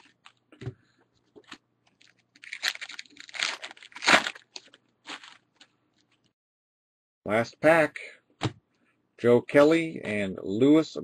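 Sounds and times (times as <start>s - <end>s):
wrapper tearing and crinkling: 1.9s - 5.7s.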